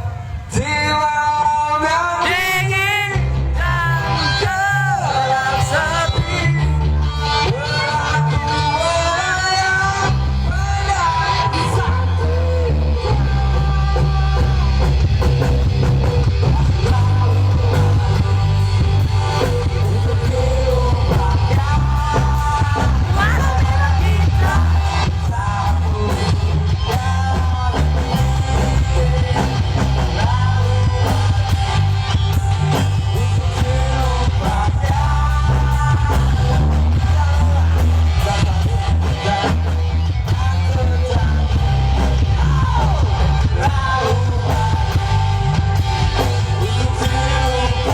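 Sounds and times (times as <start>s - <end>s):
heavy steady bass: 0.0s - 47.9s
song with singing over sound system: 0.0s - 47.9s.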